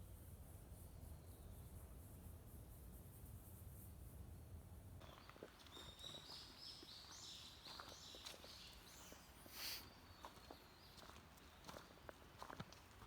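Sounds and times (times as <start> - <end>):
footsteps crunching on a trail: 5.0 - 13.0.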